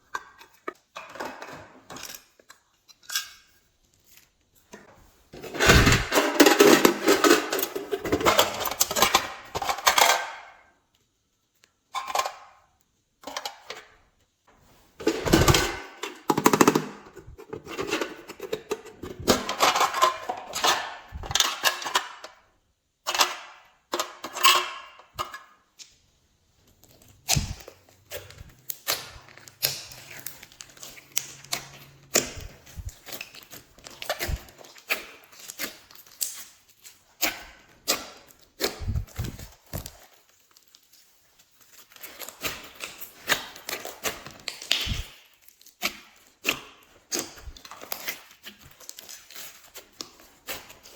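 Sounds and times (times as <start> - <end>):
slime crackling and popping: 41.7 - 50.1.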